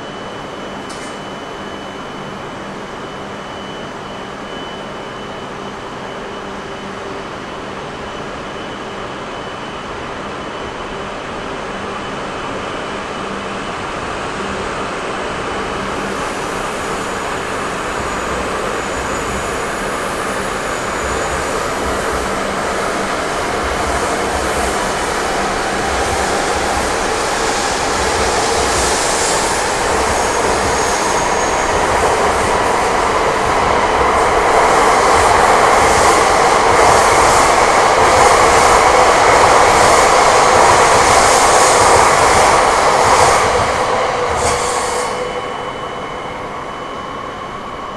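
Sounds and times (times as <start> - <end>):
train running on rails: 0.0 - 47.9
high wheel squeal: 15.7 - 37.6, 40.8 - 47.9.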